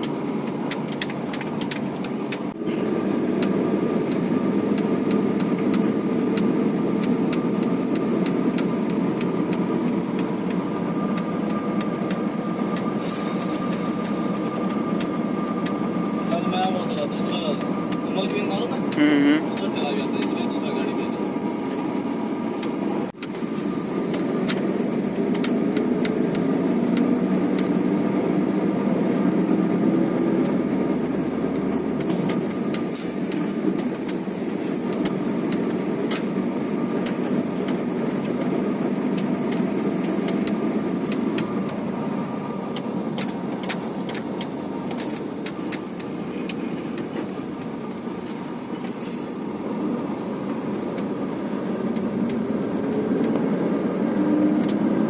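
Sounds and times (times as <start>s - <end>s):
truck engine and road rumble: 0.0s - 55.0s.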